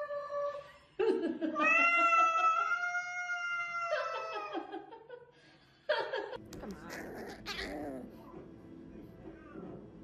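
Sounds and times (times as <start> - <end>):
cat growling: 6.6 - 8.2.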